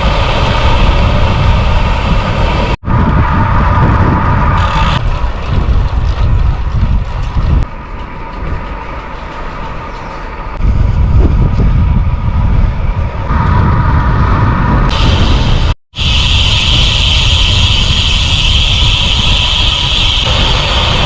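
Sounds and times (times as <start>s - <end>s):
tyre and road rumble: 0.0s - 21.0s
wind buffeting microphone: 0.0s - 21.0s
freewheel hub ratchet buzz: 16.0s - 21.0s.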